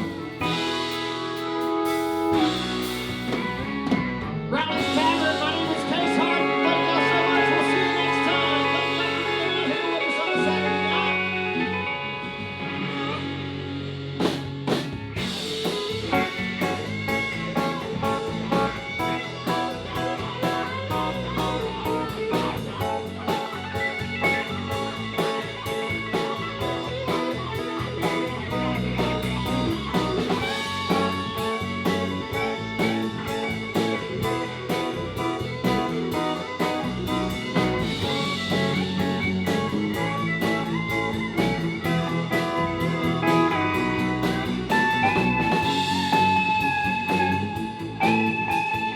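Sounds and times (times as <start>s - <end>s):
steady drum beat: 0.0s - 4.2s, 14.2s - 48.9s
lead guitar: 0.0s - 48.9s.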